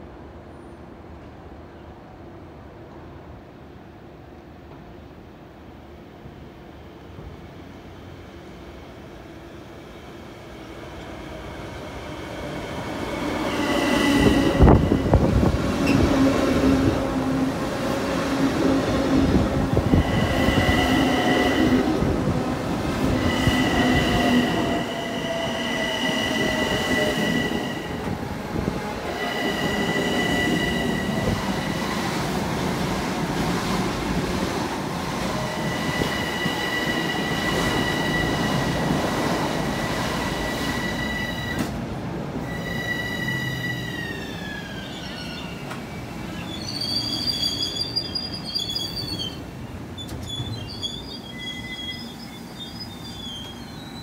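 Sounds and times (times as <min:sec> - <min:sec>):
wheels rumbling on rail: 0:11.9 - 0:54.0
high wheel squeal: 0:23.2 - 0:28.0, 0:42.4 - 0:49.4, 0:50.0 - 0:54.0.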